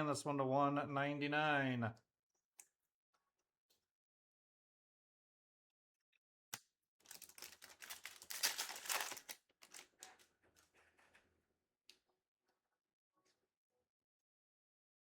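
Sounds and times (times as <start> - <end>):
wrapper crinkling and tearing: 7.0 - 10.3.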